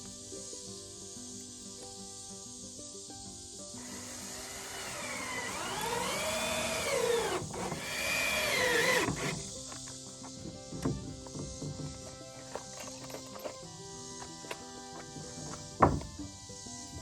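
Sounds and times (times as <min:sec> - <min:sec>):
background music: 0:00.0 - 0:17.0
sawmill engine running: 0:03.8 - 0:09.5.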